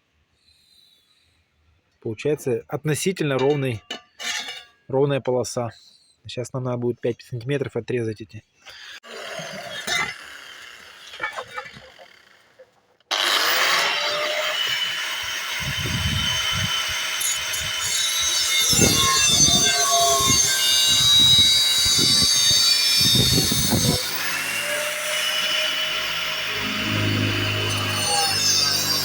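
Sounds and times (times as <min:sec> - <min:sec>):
angle grinder cutting steel pipe: 0:09.0 - 0:29.0.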